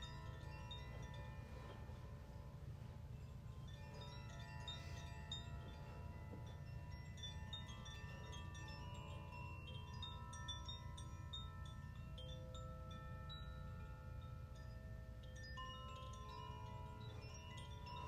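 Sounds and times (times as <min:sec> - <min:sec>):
chimes ringing: 0:00.0 - 0:18.0
steady low hum: 0:00.0 - 0:18.0.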